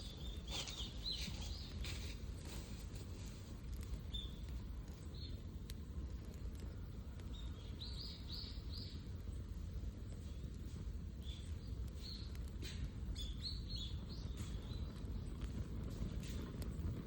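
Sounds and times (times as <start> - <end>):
small bird chirping: 0.0 - 2.6, 3.8 - 5.4, 6.7 - 9.4, 11.2 - 15.6
steady low rumble: 0.0 - 17.0.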